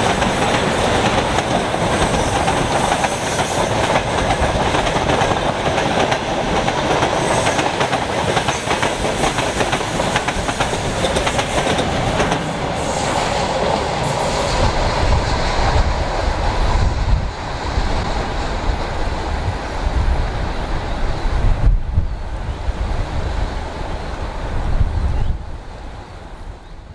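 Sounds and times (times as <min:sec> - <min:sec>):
train wheels clattering over rail joints: 0:00.0 - 0:15.1.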